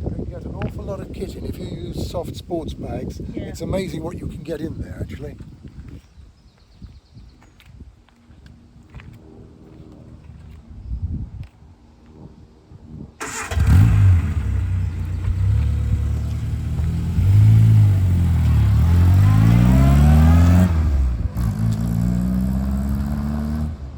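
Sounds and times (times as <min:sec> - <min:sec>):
car engine accelerating: 0:13.2 - 0:23.9.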